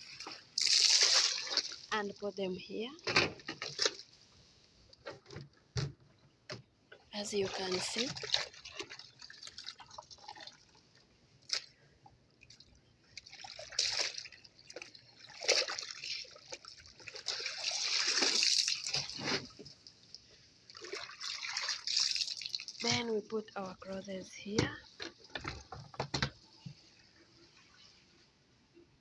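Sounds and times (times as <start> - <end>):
water dripping and splashing into tub: 0.0 - 2.2, 7.2 - 11.7, 12.4 - 23.4.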